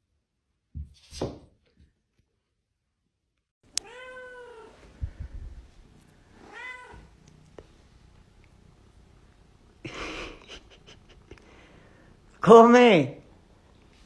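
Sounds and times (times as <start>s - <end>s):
cat meowing: 3.7s - 4.8s, 6.4s - 7.1s.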